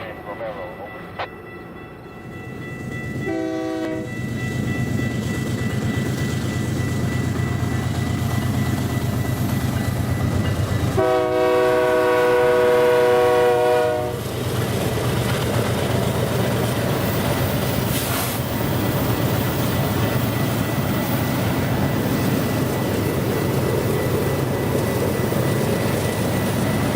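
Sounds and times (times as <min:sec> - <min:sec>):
diesel locomotives droning: 0:00.0 - 0:26.9
air horn blast: 0:11.0 - 0:14.2.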